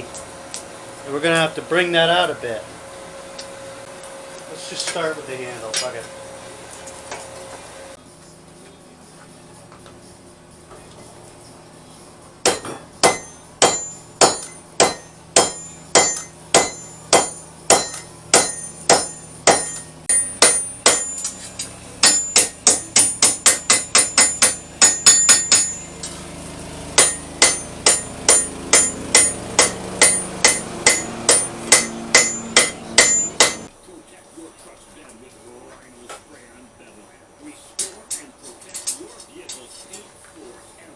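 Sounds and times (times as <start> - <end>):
hammer striking steel on an anvil: 4.7 - 6.1, 12.4 - 33.7, 37.8 - 40.0.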